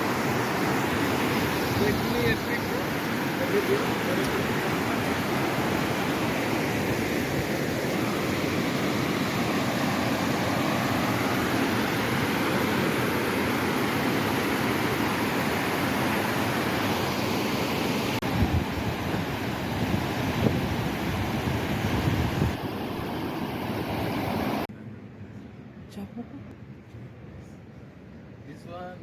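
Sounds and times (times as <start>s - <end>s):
water rushing through rapids: 0.0s - 24.7s
wind buffeting microphone: 18.2s - 23.2s.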